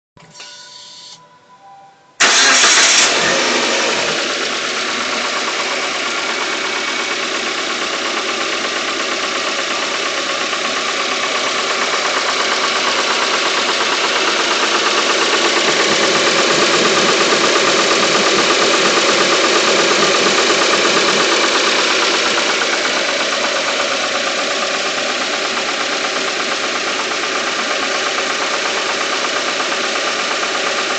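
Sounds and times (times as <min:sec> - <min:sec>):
car engine running: 0:02.2 - 0:30.9
rapid engine knocking rattle: 0:03.6 - 0:30.9.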